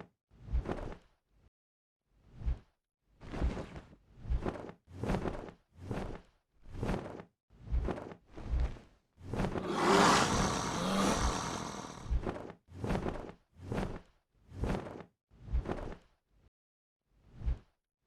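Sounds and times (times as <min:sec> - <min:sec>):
creature roar: 0:09.6 - 0:12.1
wing beats: 0:09.6 - 0:12.1.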